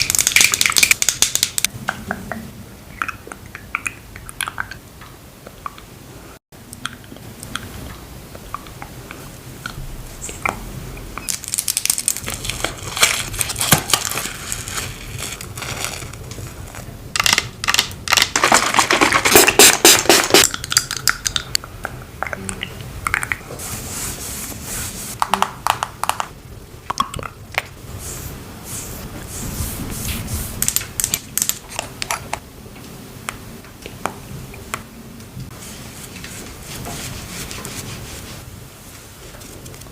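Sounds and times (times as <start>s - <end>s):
scratchy crinkly rubbing: 11.6s - 16.9s, 35.5s - 38.4s.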